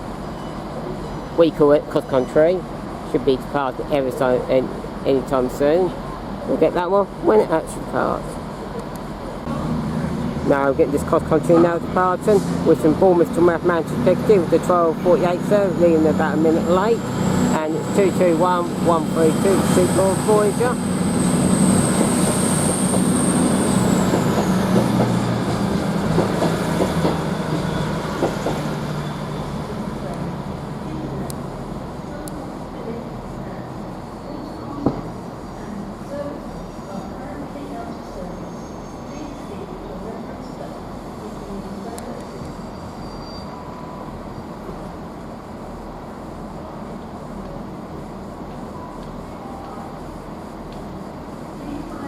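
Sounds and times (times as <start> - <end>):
diesel train engines: 0.0 - 52.0
high thin whine: 9.5 - 28.0.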